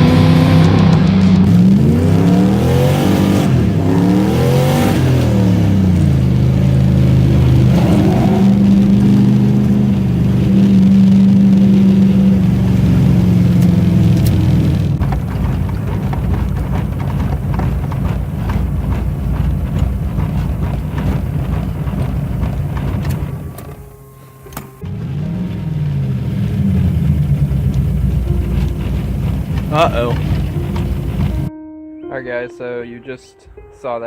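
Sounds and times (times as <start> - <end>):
engine knocking: 0.0 - 23.9, 24.9 - 31.5
car engine running: 0.0 - 31.5.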